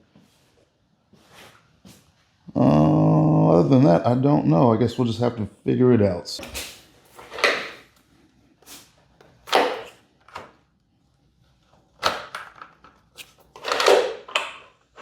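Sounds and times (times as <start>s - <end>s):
clunks and scrapes of handled parts: 12.4s - 15.0s.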